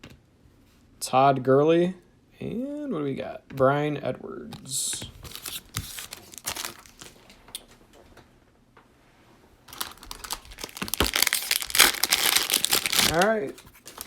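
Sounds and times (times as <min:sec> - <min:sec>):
plastic wrapper crinkling: 0:05.1 - 0:07.4, 0:09.7 - 0:14.0
wrapper being torn open: 0:05.3 - 0:07.2, 0:09.7 - 0:14.0.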